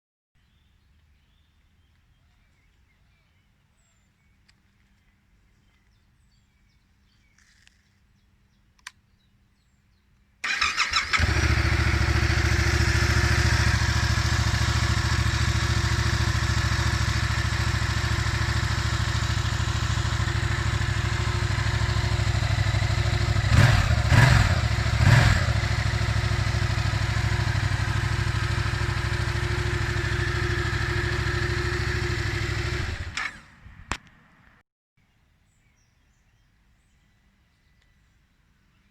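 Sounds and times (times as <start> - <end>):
motorcycle engine idling: 10.4 - 33.2
engine throttle blips: 10.4 - 33.6.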